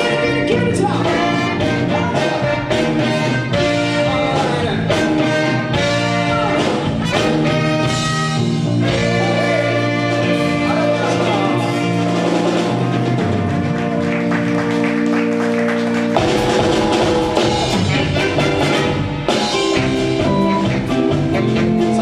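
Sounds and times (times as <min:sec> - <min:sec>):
person singing: 0:00.0 - 0:06.9, 0:08.8 - 0:12.2
live band with brass horns: 0:00.0 - 0:22.0.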